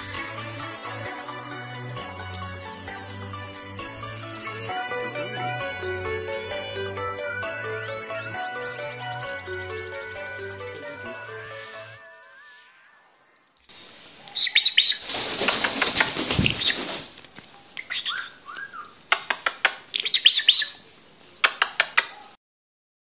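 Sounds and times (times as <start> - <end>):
small birds chirping: 13.4 - 22.4
wings fluttering: 14.2 - 20.7.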